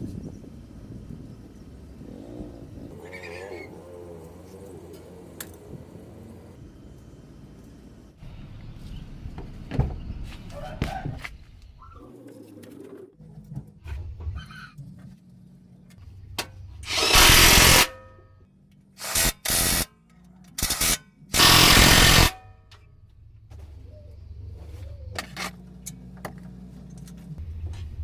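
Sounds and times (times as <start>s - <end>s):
compressed air tool blasts: 16.8s - 18.0s, 19.0s - 19.9s, 20.6s - 22.4s.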